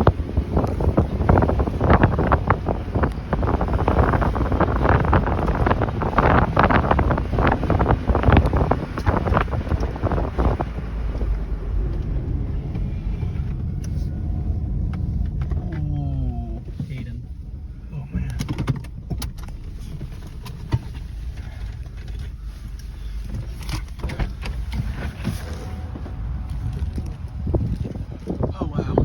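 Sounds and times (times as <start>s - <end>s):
wind on microphone: 0.0s - 16.7s, 23.0s - 29.0s.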